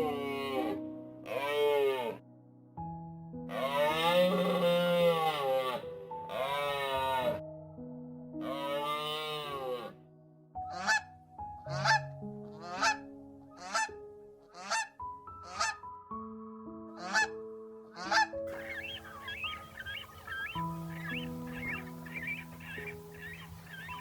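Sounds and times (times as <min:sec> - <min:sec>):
background music sustained notes: 0:00.0 - 0:24.0
bird honking: 0:17.0 - 0:17.3, 0:18.0 - 0:24.0.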